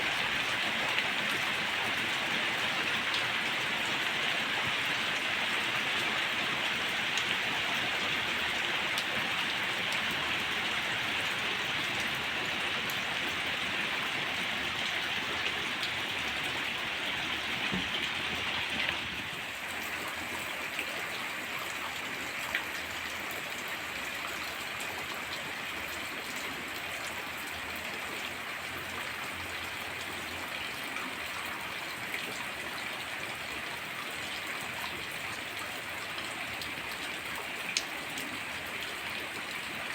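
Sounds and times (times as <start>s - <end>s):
heavy rain falling: 0.1s - 26.3s.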